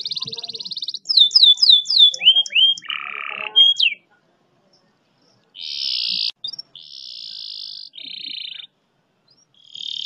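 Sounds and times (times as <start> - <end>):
canary singing: 0.0 - 4.1, 4.7 - 10.0.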